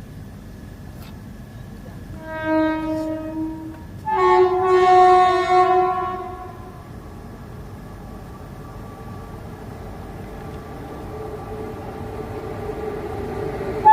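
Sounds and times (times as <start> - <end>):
locomotive horn blasts: 2.2 - 6.9.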